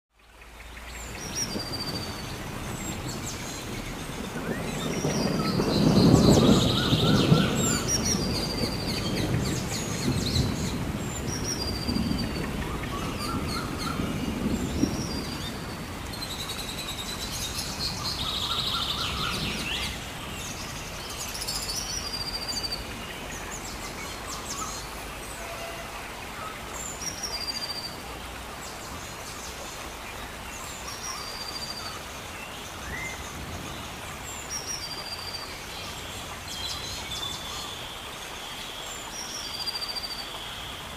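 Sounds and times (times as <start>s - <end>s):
birds chirping: 0.3s - 28.0s.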